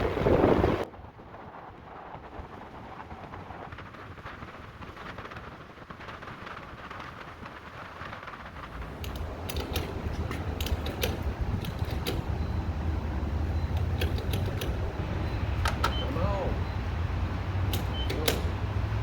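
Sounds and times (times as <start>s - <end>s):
engine running: 8.5s - 19.0s
metallic clicks and creaks: 8.7s - 16.3s, 17.5s - 19.0s.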